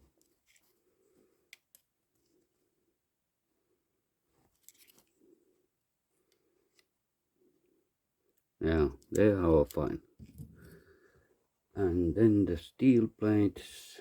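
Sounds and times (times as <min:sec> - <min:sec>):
faint metallic clicks and scrapes: 0:00.0 - 0:00.8, 0:04.4 - 0:05.3.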